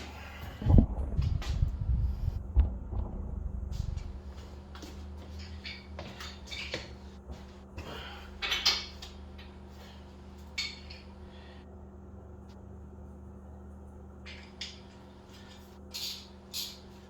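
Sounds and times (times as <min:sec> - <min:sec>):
wrenches clinking on metal: 0:08.4 - 0:09.5, 0:15.9 - 0:16.9.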